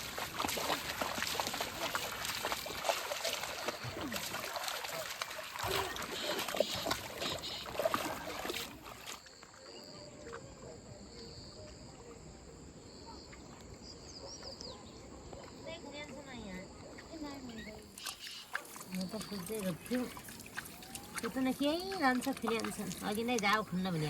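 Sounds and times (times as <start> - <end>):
water splashing and trickling: 0.0 - 10.7, 16.1 - 24.0
high insect calls: 5.7 - 8.2, 16.4 - 24.0.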